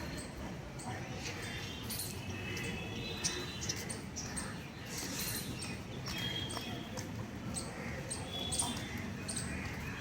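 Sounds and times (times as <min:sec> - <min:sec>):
mynas harsh chirping calls: 0:00.0 - 0:10.0.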